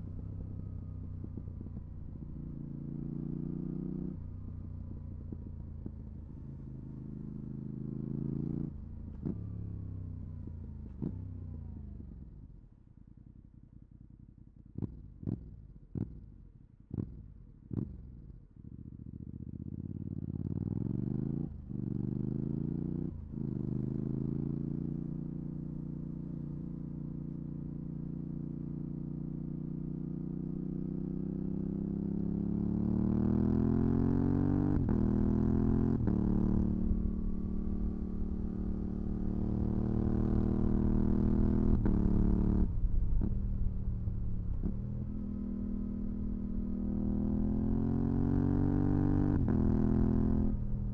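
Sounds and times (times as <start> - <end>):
motorcycle engine accelerating: 19.0 - 50.9.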